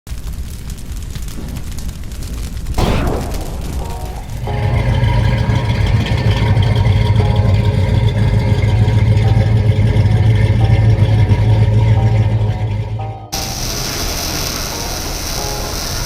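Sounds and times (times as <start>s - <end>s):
car engine idling: 3.9s - 15.4s.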